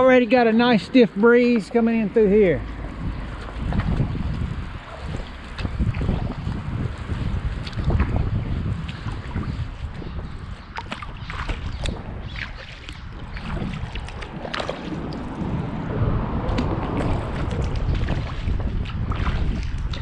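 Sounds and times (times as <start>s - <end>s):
wind buffeting microphone: 0.0s - 20.0s
paddle splashing in water: 2.6s - 20.0s.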